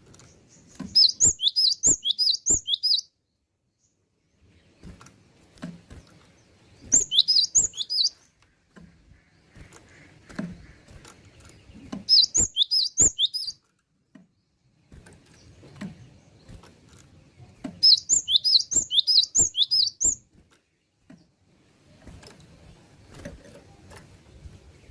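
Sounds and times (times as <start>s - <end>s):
bird chirping rapidly: 0.3s - 3.2s, 6.4s - 8.3s, 9.0s - 13.6s, 17.8s - 20.3s
soft clicks and knocks: 13.6s - 17.8s.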